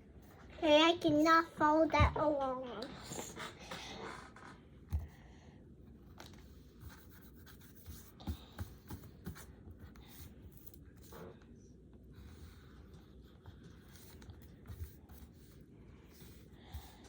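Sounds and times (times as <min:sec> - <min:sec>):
pencil scratching on paper: 0:06.5 - 0:11.3, 0:12.2 - 0:17.0.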